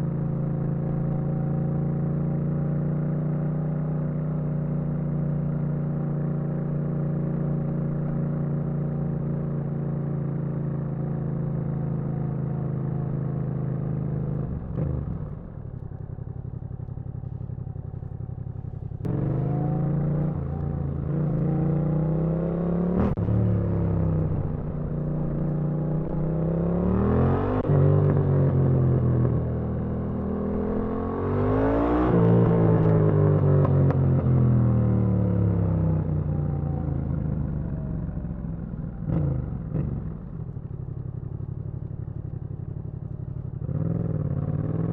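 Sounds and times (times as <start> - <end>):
motorcycle engine revving: 9.0 - 44.9.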